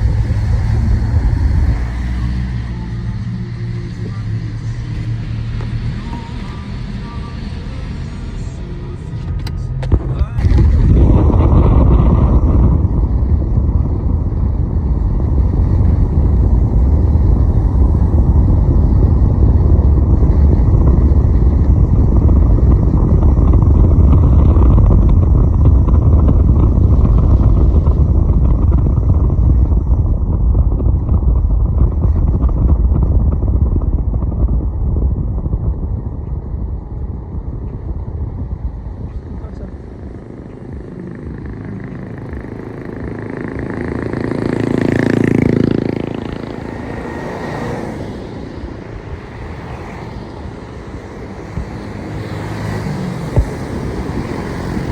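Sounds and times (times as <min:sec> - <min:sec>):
motorcycle engine: 0:00.0 - 0:54.9
wind rumble on microphone: 0:00.0 - 0:54.9.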